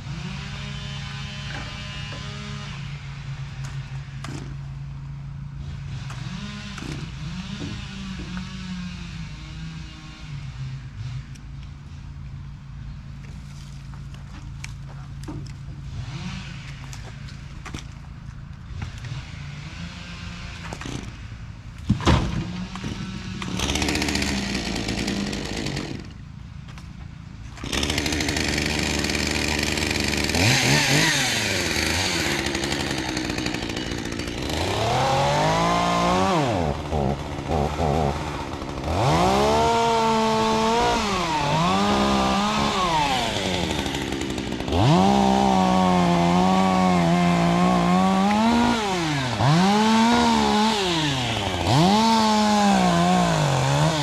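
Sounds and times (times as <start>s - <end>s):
chainsaw revving: 0.0s - 3.0s, 5.6s - 11.4s, 15.8s - 16.9s, 18.8s - 21.2s, 22.4s - 26.2s, 27.5s - 54.0s.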